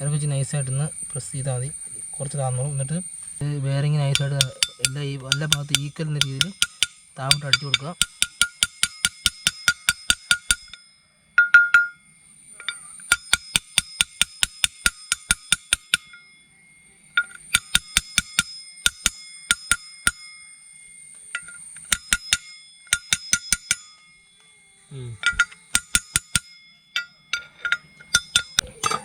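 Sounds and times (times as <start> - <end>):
metal-on-metal tapping: 3.8 - 10.8, 11.4 - 12.0, 12.6 - 16.3, 17.2 - 20.4, 21.1 - 24.5, 25.2 - 29.0.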